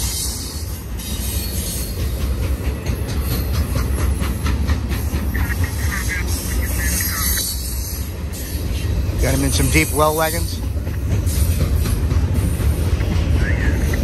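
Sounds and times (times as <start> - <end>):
freight train rumbling past: 0.0 - 14.0
wheels clicking over rail joints: 1.7 - 5.4, 9.2 - 14.0.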